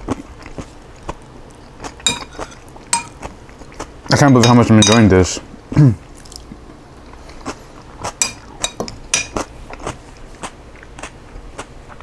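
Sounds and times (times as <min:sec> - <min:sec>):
chewing crunchy salad: 0:00.0 - 0:05.1, 0:06.0 - 0:12.0
utensil clicking against dish: 0:04.1 - 0:05.2, 0:08.0 - 0:09.4.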